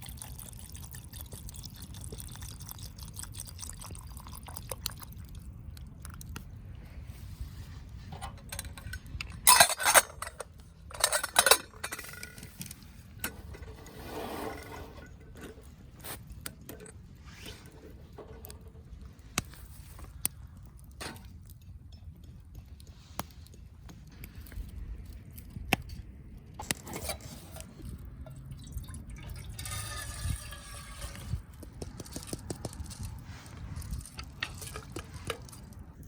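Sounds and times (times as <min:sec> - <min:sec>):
cookware and utensils handled: 0:08.1 - 0:15.7, 0:29.4 - 0:35.7
soft scraping: 0:11.9 - 0:16.3, 0:29.5 - 0:35.8.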